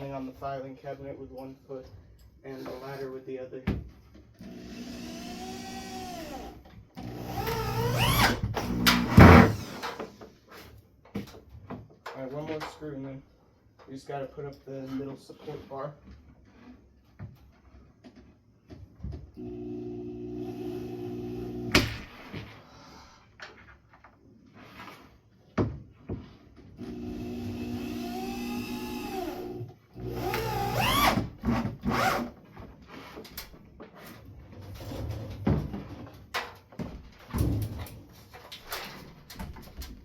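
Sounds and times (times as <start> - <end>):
power drill driving a screw: 4.4 - 10.0, 26.8 - 32.3.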